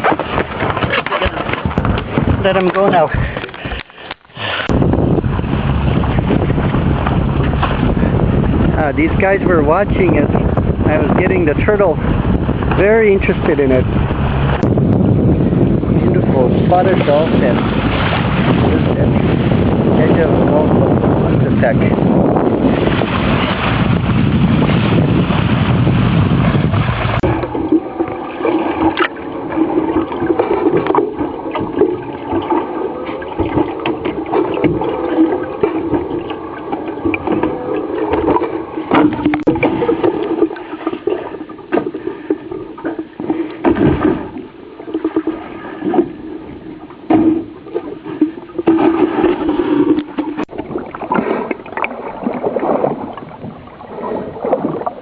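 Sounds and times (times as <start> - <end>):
water sloshing along hull: 0.0 - 55.0
wind buffeting microphone: 0.0 - 55.0
steady low hum: 26.6 - 51.8.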